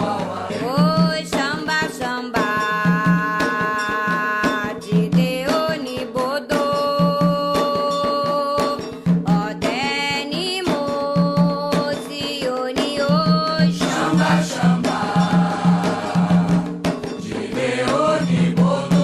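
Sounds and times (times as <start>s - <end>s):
hand drum beat: 0.0s - 19.0s
deep drum accents: 13.1s - 19.0s.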